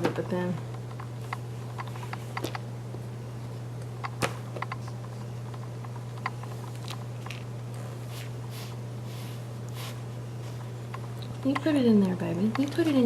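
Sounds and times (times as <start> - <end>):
steady low hum: 0.0 - 13.0
light clicks and taps on tray: 10.9 - 13.0.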